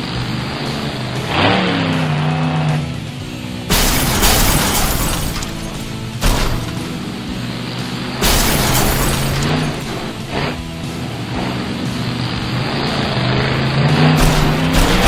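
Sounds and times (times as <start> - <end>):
background music: 0.0 - 15.0
truck engine revving: 0.0 - 15.0
loud bursts of noise: 3.6 - 15.0.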